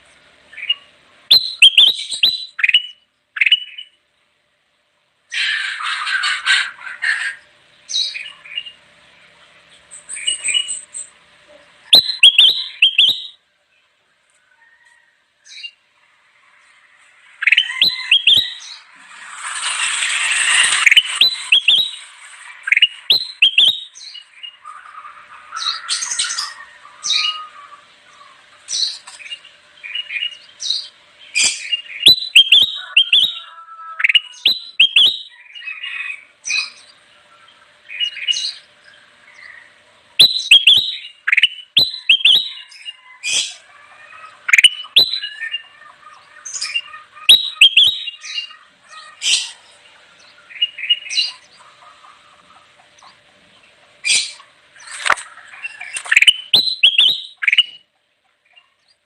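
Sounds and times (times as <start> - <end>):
bird singing sharp chirps: 0.6 - 4.0, 11.9 - 13.4, 17.4 - 24.7, 28.7 - 33.4, 34.1 - 35.4, 40.2 - 43.5, 46.5 - 48.5, 55.8 - 57.8
harsh rasping bird call: 17.4 - 29.0, 40.3 - 49.7.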